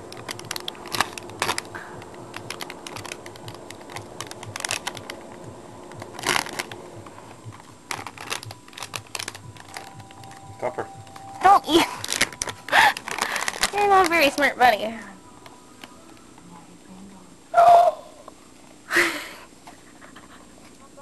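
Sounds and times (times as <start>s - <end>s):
wrapping paper crinkling: 0.0s - 10.5s, 11.1s - 14.9s.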